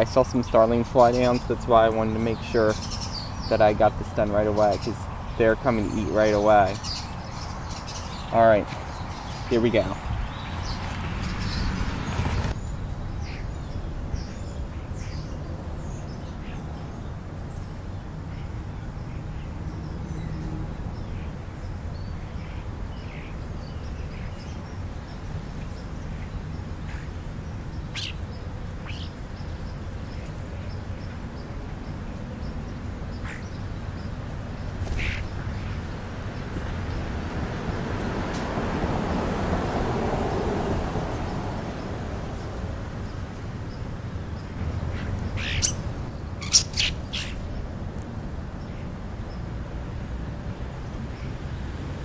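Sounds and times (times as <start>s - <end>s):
bird chirps and calls: 0.0s - 35.9s, 42.4s - 47.6s.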